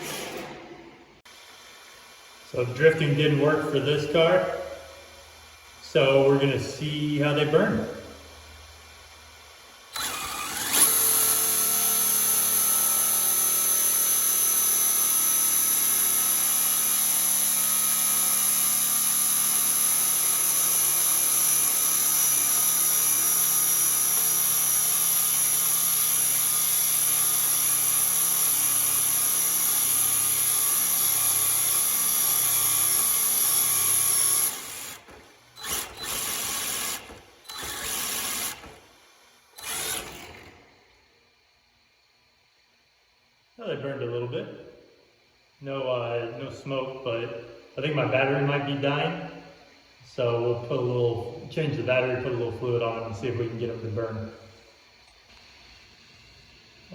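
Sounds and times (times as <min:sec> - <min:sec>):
electric motor whining: 0:09.9 - 0:40.9.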